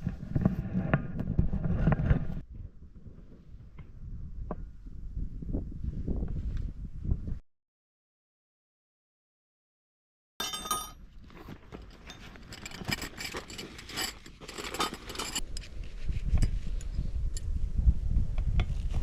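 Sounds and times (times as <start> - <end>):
small metal parts clinking: 10.4 - 11.0, 11.9 - 15.4.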